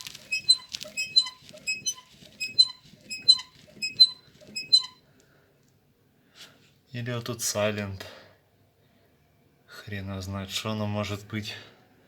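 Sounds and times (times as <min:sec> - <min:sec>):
car suspension squeaking: 0:00.0 - 0:05.0.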